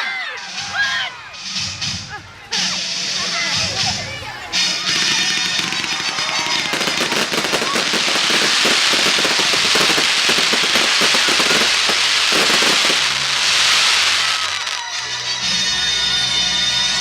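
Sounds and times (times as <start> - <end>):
fireworks crackling: 4.5 - 15.9.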